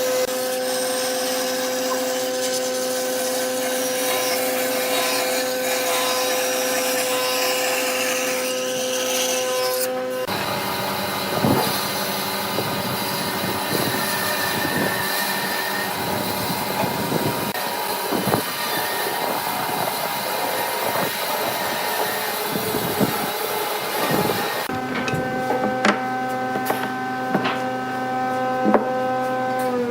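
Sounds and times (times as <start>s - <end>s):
wood lathe motor hum: 9.2s - 29.9s
turning tool scraping wood: 19.7s - 29.8s.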